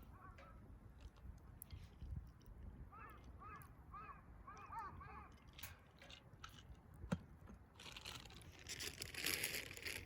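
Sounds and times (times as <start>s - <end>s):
crunching and crinkling: 7.7s - 10.0s.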